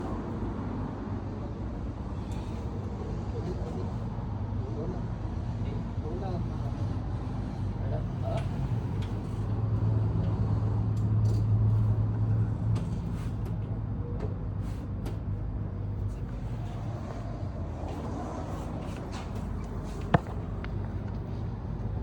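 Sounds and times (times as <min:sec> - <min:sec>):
car engine humming: 0:15.8 - 0:22.0.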